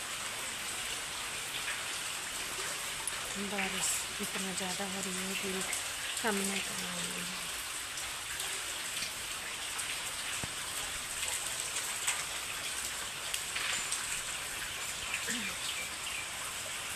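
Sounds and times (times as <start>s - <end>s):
heavy rain falling: 0.0s - 16.9s.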